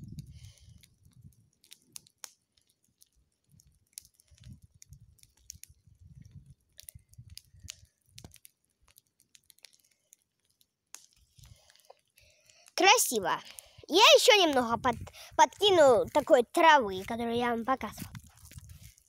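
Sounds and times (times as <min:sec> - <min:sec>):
bonfire crackling: 0:00.0 - 0:19.0.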